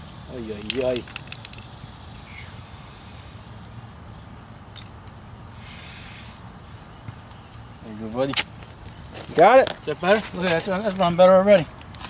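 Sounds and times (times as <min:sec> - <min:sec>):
aerosol spray hiss: 0:02.2 - 0:03.6, 0:05.6 - 0:06.5.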